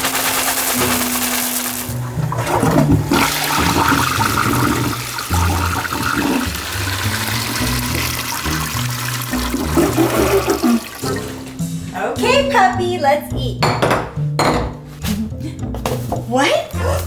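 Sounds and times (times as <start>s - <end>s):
water rushing: 0.0s - 11.8s.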